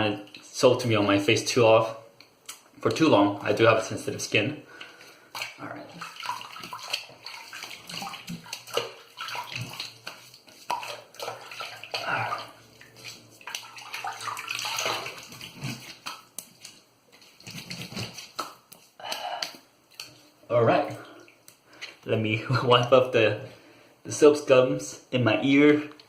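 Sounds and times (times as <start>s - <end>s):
water splashing in a sink: 4.8s - 20.2s.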